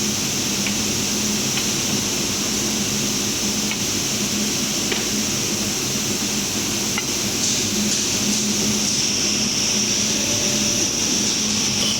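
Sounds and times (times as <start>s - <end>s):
glass cutting machine running: 8.4s - 11.9s.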